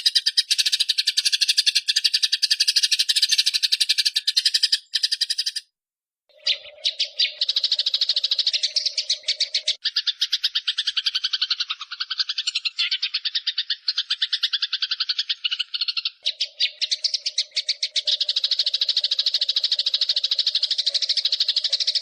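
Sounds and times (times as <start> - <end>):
sparrows chattering: 0.0 - 5.7, 6.3 - 22.0.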